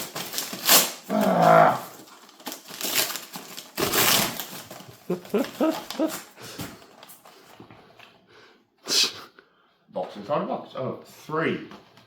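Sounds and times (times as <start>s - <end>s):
packaging being torn open: 0.0s - 6.3s.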